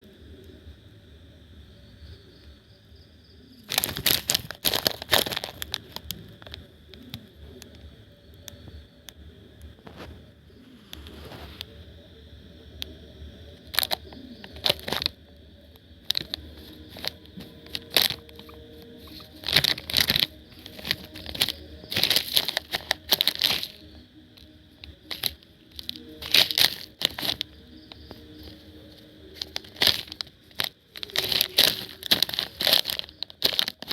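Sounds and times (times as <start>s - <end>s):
faint high-pitched hum: 0.0s - 33.9s
rustling and crinkling: 3.6s - 7.9s, 9.7s - 11.8s, 13.6s - 15.2s, 16.0s - 33.9s.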